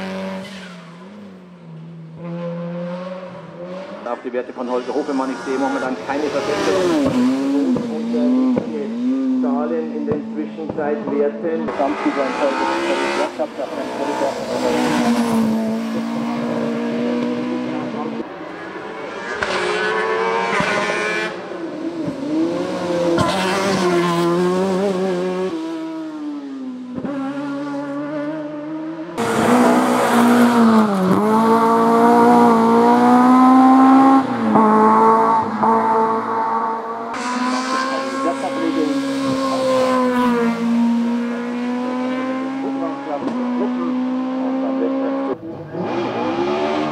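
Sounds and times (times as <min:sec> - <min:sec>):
race car engines at high revs: 0:00.0 - 0:46.9.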